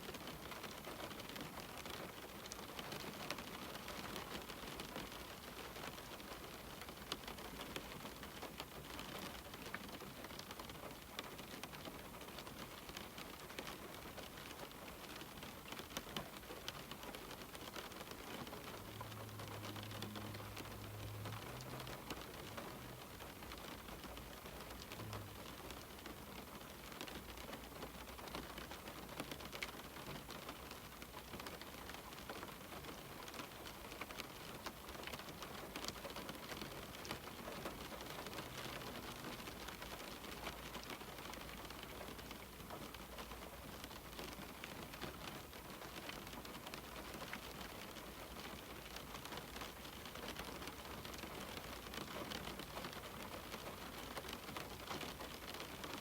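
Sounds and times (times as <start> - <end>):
rain on a window pane: 0.0 - 56.0.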